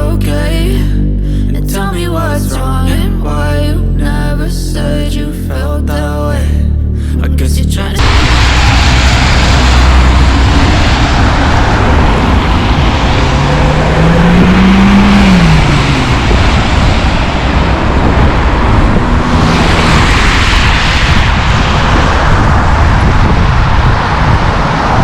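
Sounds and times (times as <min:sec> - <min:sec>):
cars passing: 0:08.0 - 0:25.0
vehicle engine revving: 0:08.0 - 0:25.0.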